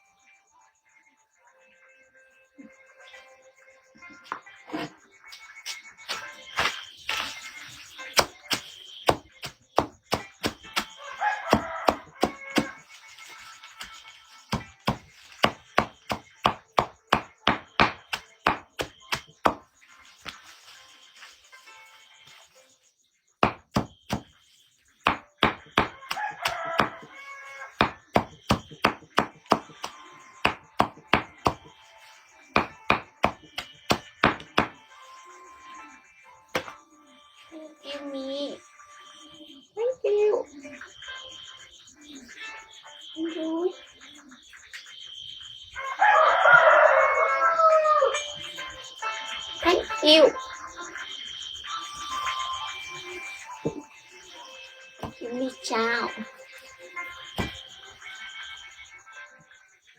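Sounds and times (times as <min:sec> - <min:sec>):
blade chopping: 0:05.7 - 0:12.9.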